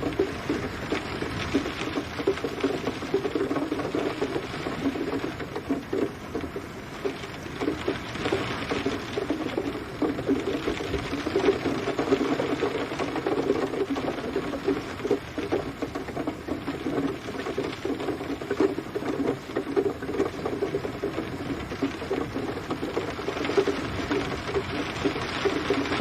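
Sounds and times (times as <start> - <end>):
rain pattering: 0.0 - 26.0.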